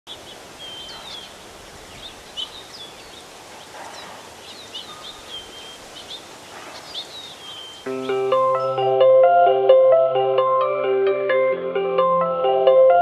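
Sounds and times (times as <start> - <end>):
small birds chirping: 0.1 - 8.9
outdoor ambience hiss: 0.1 - 10.0.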